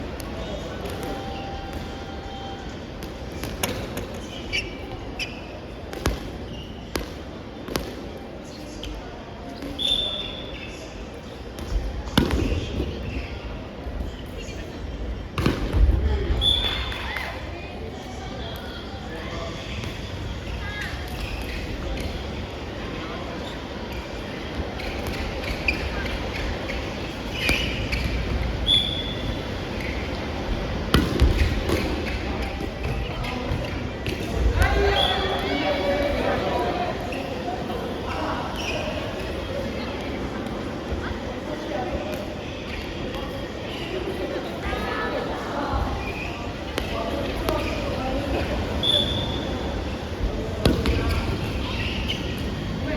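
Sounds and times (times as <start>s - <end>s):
faint voices in a hall: 0.0s - 52.9s
shoe squeaks: 3.4s - 7.1s, 9.5s - 11.1s, 16.4s - 17.3s, 23.0s - 30.6s, 31.2s - 39.3s, 45.9s - 49.9s, 50.7s - 52.6s.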